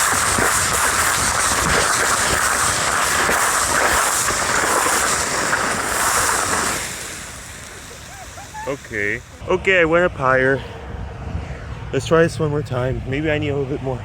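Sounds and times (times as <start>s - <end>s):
ocean surf: 0.0s - 9.6s
wind rushing on microphone: 0.0s - 14.0s.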